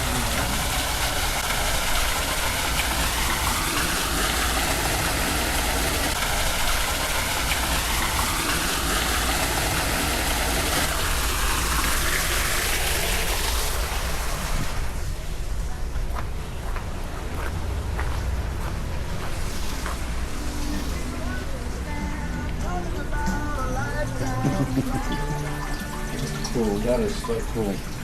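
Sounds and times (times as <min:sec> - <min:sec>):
faint voices: 0:00.0 - 0:01.0
steady rushing noise: 0:00.0 - 0:24.9.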